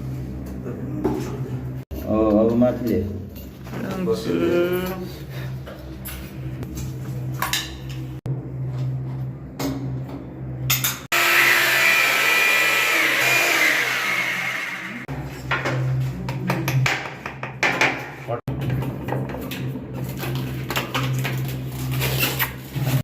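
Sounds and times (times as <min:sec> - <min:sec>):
power tool motor whining: 0:11.1 - 0:15.1.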